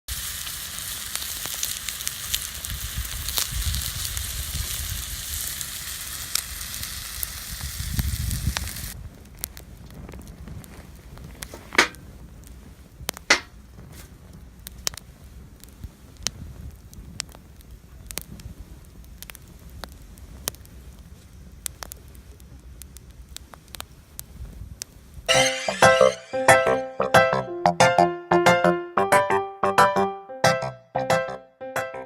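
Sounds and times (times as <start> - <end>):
campfire crackling: 0.1 - 25.3
fire popping: 0.1 - 26.1.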